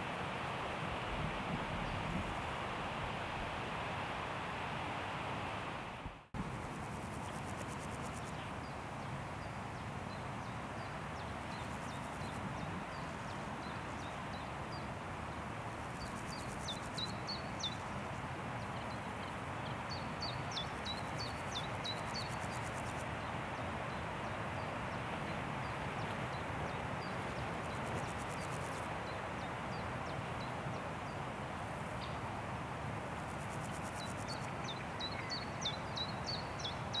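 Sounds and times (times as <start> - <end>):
wind through forest trees: 0.0 - 37.0
songbird chirping: 33.6 - 37.0.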